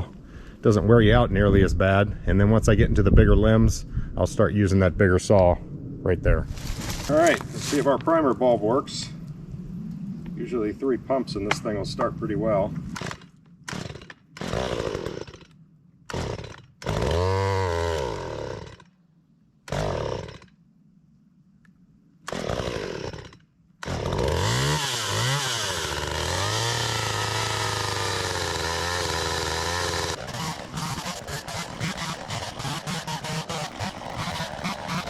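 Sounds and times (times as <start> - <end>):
chainsaw pull-starting and idling: 13.0 - 18.9, 19.7 - 20.6, 22.3 - 35.0.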